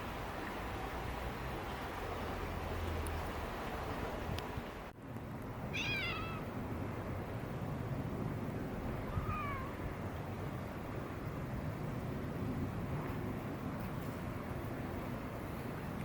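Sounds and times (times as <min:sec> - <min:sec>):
cat meowing: 0:05.8 - 0:06.5, 0:09.1 - 0:09.8.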